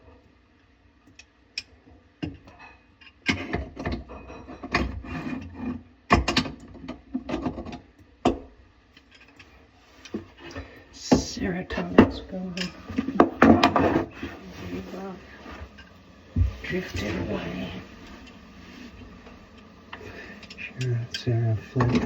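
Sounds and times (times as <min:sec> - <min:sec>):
tools and fittings clicking and scraping: 0:09.0 - 0:10.6.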